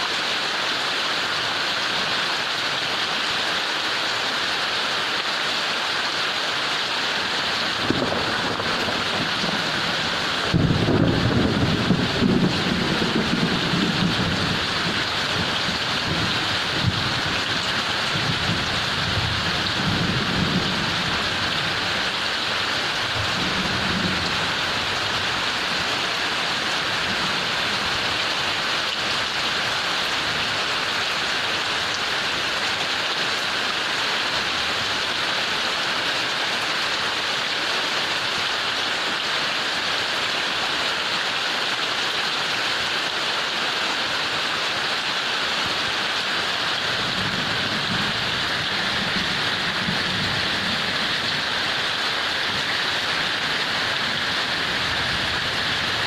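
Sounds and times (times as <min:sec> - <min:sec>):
heavy rain pouring: 0:00.0 - 0:56.0
low thunder rumbling: 0:07.7 - 0:22.1, 0:23.1 - 0:25.8.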